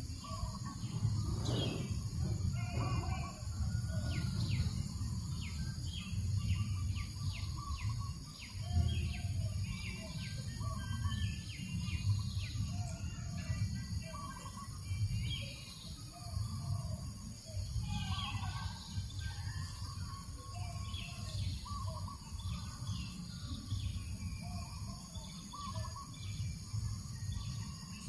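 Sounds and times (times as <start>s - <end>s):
breeze rumbling on microphone: 0.0s - 8.0s
soft bird chirps: 0.0s - 16.7s.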